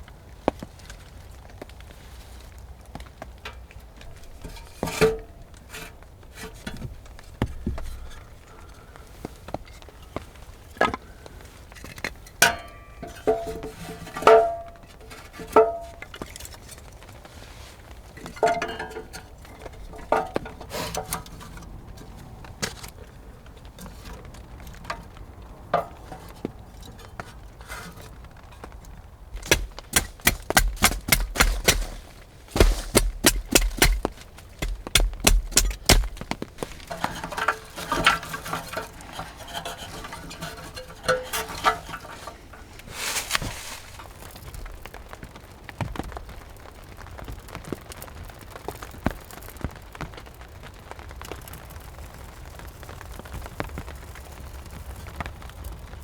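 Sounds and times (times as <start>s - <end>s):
metal utensils clinking: 12.4s - 16.3s, 18.2s - 21.5s, 29.4s - 44.2s
sharp strikes and dull thumps: 29.4s - 44.0s
wooden knocks: 29.4s - 44.0s.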